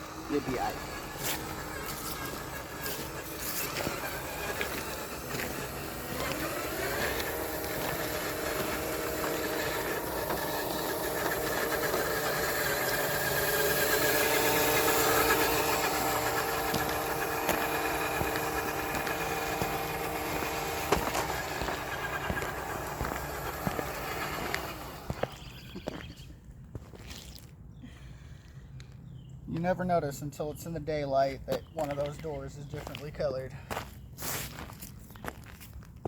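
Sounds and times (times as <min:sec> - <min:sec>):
rc truck motor whining: 0:00.0 - 0:26.2.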